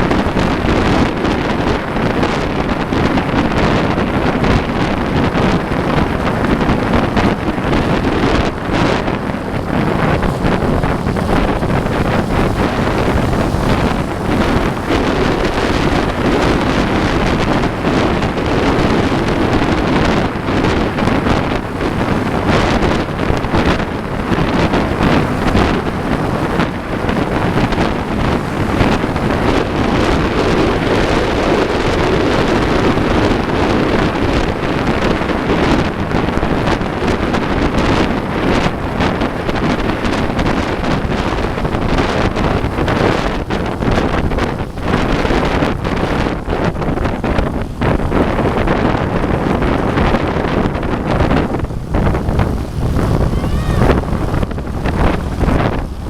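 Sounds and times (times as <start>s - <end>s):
wind buffeting microphone: 0.0s - 56.0s
low rumble: 2.8s - 31.8s, 50.8s - 56.0s.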